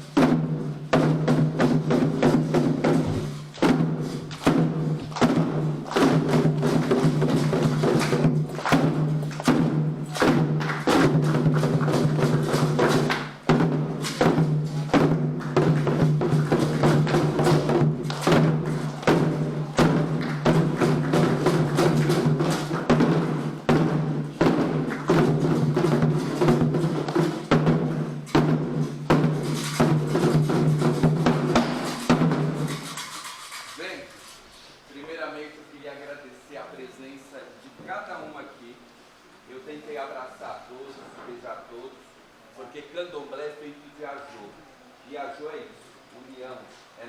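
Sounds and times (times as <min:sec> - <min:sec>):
hand drums playing fast rhythm: 0:00.0 - 0:33.9.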